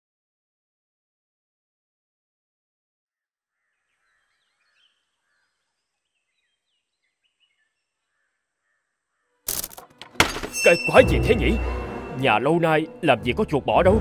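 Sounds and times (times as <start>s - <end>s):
faint birds chirping: 3.2s - 9.4s.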